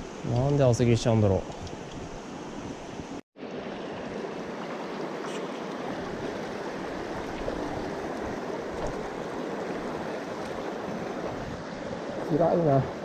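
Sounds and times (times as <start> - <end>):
stream rushing over rocks: 3.4 - 13.0.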